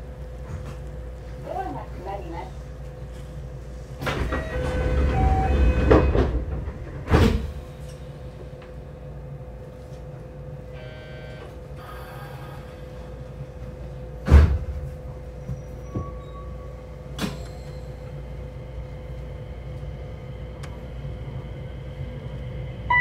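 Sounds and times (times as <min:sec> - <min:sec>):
electric train running rumble: 0:00.0 - 0:23.0
short buzzing tone: 0:10.8 - 0:11.5.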